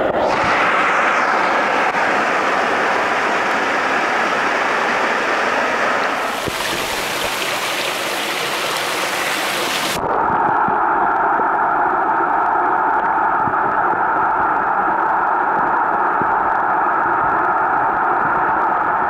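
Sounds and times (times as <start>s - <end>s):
muffled underwater rush: 0.0s - 18.4s
waterfall rushing and splashing: 0.3s - 10.0s.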